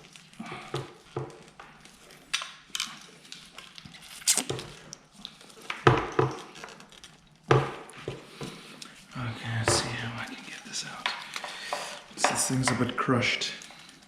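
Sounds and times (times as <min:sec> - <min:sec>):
motorcycle parts knocking and cracking: 0:00.0 - 0:03.5, 0:05.6 - 0:08.6.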